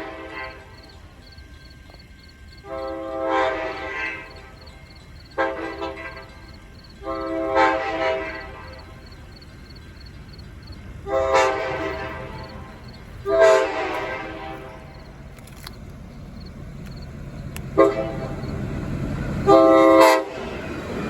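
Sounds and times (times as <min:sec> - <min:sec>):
diesel locomotive horn: 0:00.0 - 0:01.3, 0:02.5 - 0:09.3, 0:11.0 - 0:15.6, 0:17.4 - 0:21.0.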